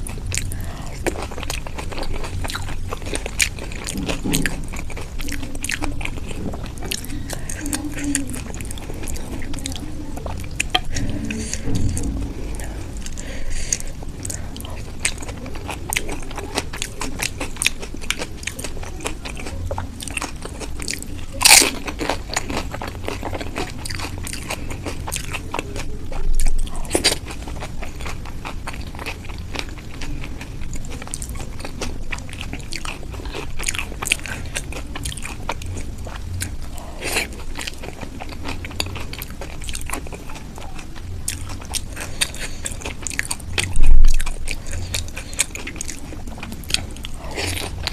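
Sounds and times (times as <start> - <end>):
crunchy bites and chewing: 14.2 - 47.9.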